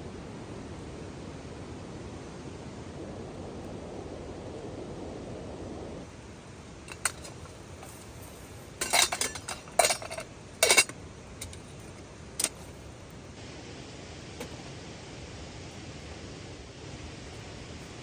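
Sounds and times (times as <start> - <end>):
metal cookware clinking: 6.9 - 12.9.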